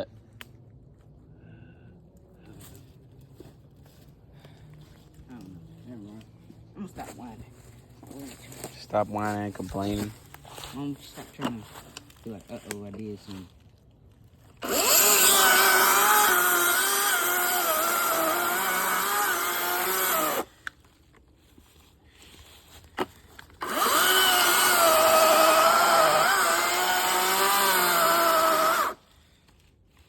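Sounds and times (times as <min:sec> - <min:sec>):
chainsaw cutting into tree trunk: 0:14.6 - 0:20.7, 0:23.0 - 0:29.1.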